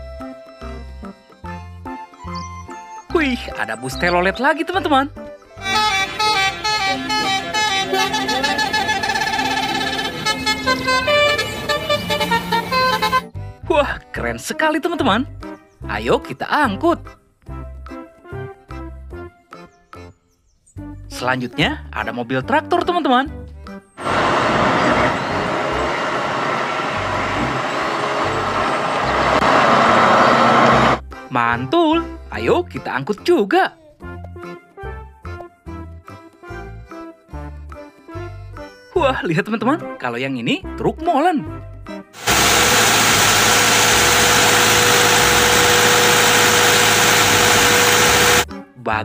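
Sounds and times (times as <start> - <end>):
motor vehicle running: 5.6 - 13.2, 24.0 - 31.0, 42.2 - 48.5
truck engine idling rumble: 24.0 - 31.0, 42.2 - 48.4.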